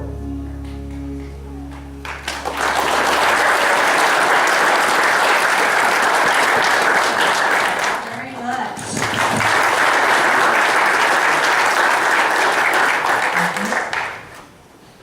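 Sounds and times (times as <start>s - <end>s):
music chord: 0.0s - 4.2s
audience applauding: 0.9s - 14.4s.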